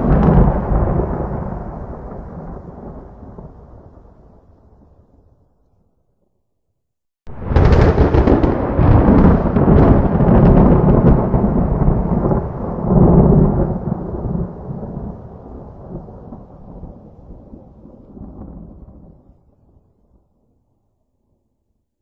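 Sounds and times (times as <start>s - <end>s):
lightning crack: 0.0s - 5.2s, 7.3s - 19.3s
rolling thunder rumble: 0.0s - 5.4s, 7.3s - 19.9s.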